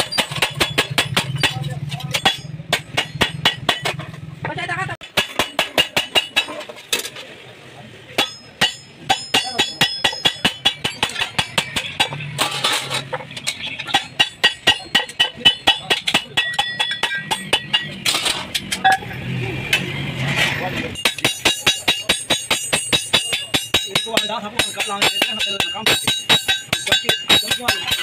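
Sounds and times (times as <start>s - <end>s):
hammer striking sheet metal: 0.0s - 4.2s, 5.0s - 6.7s, 8.2s - 19.0s, 21.0s - 28.0s.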